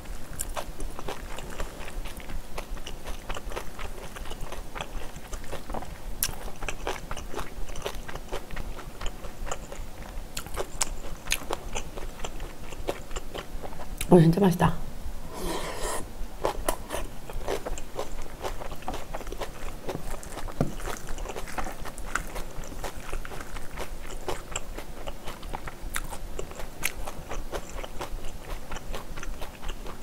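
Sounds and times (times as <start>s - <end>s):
chewing with mouth clicks: 0.1s - 14.1s, 16.4s - 30.0s
metal spoon scraping bowl: 15.4s - 16.0s.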